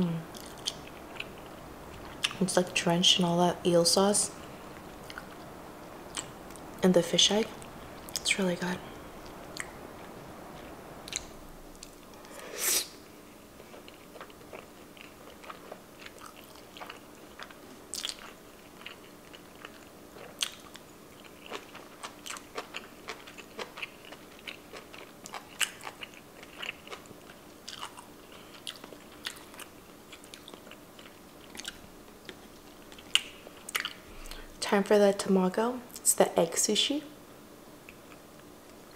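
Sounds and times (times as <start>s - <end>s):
chewing with wet mouth clicks: 0.4s - 2.4s, 13.6s - 34.5s.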